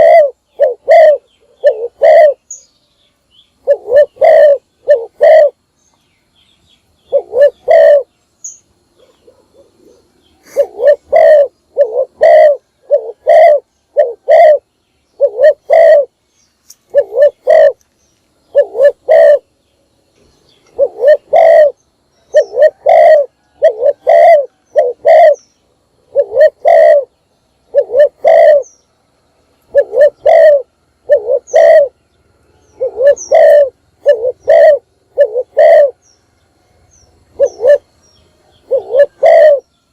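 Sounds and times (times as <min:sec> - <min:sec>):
dove cooing: 0:00.0 - 0:02.7, 0:03.6 - 0:05.7, 0:07.0 - 0:08.1, 0:08.9 - 0:16.2, 0:16.9 - 0:17.8, 0:18.5 - 0:19.6, 0:20.6 - 0:25.4, 0:26.0 - 0:28.8, 0:29.6 - 0:32.0, 0:32.6 - 0:36.0, 0:37.2 - 0:39.8.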